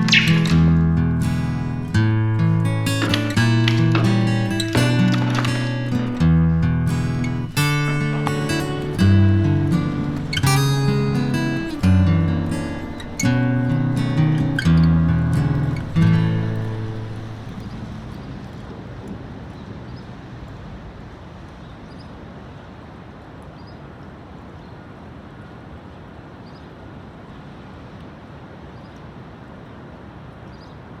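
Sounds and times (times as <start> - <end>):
faint high chirps: 0.0 - 1.0
acoustic guitar chord strummed: 0.0 - 17.6
outdoor background rumble: 0.0 - 21.6.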